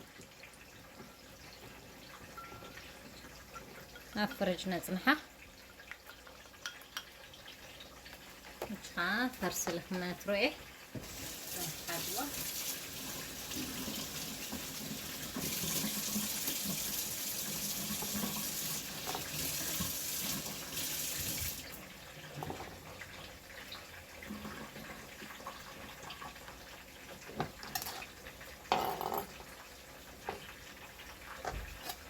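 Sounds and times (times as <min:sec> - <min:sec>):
tap running into sink: 0:13.0 - 0:21.6.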